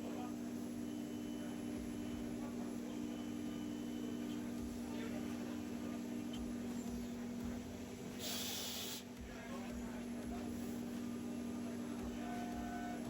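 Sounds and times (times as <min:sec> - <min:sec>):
low machine hum: 0:00.0 - 0:13.0
short hiss of air: 0:08.2 - 0:09.0.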